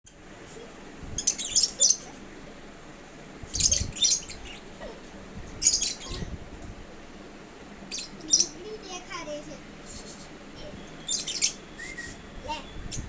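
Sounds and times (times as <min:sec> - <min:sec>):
lovebirds chirping: 0:01.2 - 0:02.2, 0:03.5 - 0:04.9, 0:05.6 - 0:06.4, 0:07.8 - 0:13.0.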